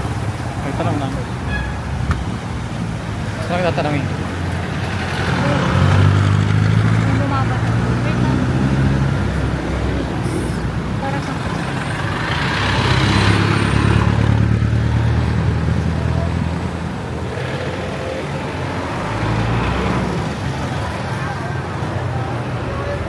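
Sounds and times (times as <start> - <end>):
city street traffic: 0.0 - 23.0
vehicle engine running close by: 3.4 - 21.6.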